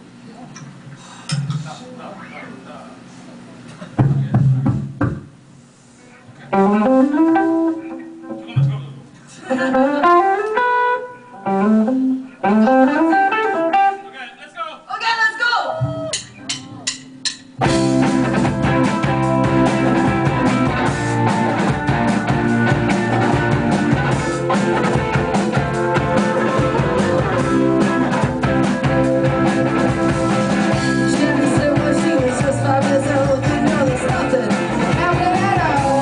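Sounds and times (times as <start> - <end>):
live rock band playing: 6.5 - 8.8, 9.4 - 14.0, 15.8 - 36.0.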